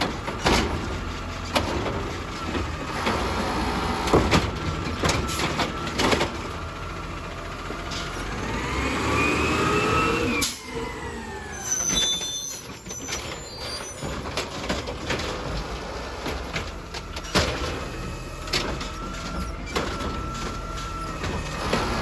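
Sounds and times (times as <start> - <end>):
garbage truck engine rumble: 0.0 - 22.0
hydraulics whining: 0.0 - 22.0
short high squeals: 9.2 - 14.1.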